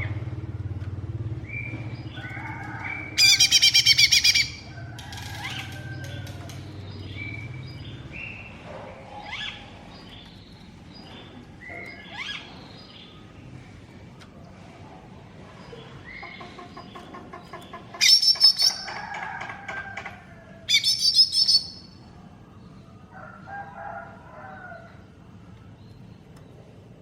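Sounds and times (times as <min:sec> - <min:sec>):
bird singing rapid chirps: 0:01.4 - 0:04.7, 0:15.7 - 0:19.2, 0:20.7 - 0:22.0.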